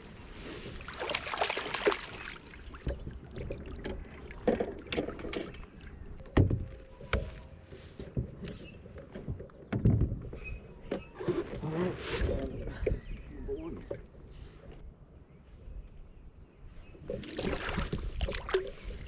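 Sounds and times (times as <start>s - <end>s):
knocks and thumps on kayak: 6.3s - 11.6s.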